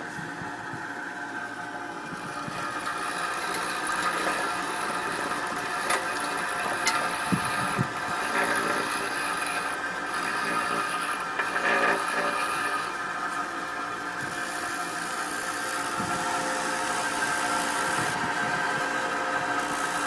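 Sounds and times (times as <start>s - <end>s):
brick cleaning machine humming: 0.0s - 20.0s
chisels scraping mortar: 6.0s - 12.9s.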